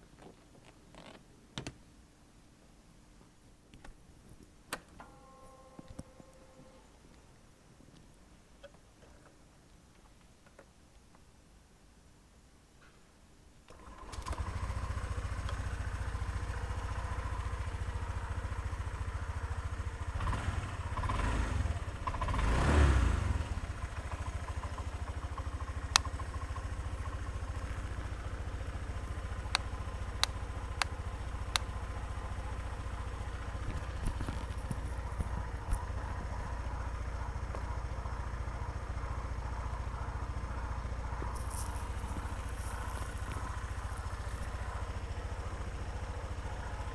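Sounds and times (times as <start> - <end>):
scooter engine idling and revving: 13.7 - 46.9
sharp clicks: 41.2 - 44.7.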